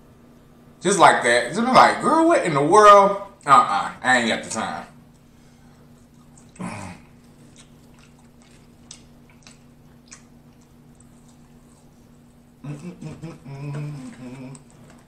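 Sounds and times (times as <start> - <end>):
low hum: 4.6 - 15.0
person chewing food: 5.0 - 15.0.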